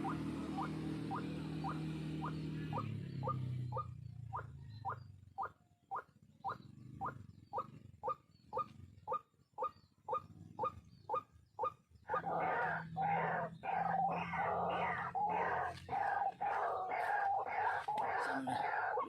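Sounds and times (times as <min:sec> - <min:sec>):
waterhen calling: 0:00.0 - 0:03.9, 0:11.1 - 0:19.0.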